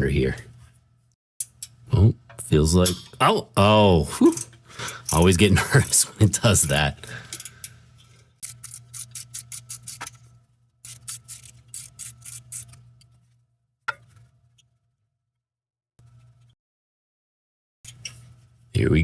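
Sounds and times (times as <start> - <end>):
low steady hum: 0.0 - 13.3
ratchet clicking: 1.4 - 1.8, 7.2 - 7.7, 8.4 - 10.2, 10.8 - 12.8.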